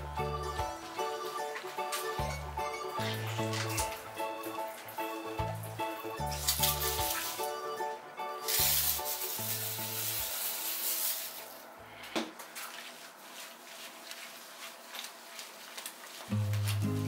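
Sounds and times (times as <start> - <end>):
background music: 0.0 - 11.6, 16.3 - 17.0
hands scrubbing wet fur: 6.3 - 7.5, 8.5 - 11.6, 12.5 - 17.0.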